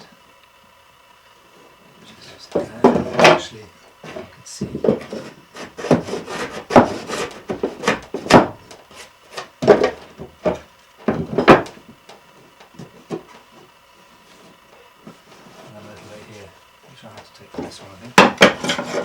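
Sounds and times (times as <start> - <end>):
hand plane strokes on wood: 4.0 - 8.3, 14.2 - 16.4, 18.4 - 19.0.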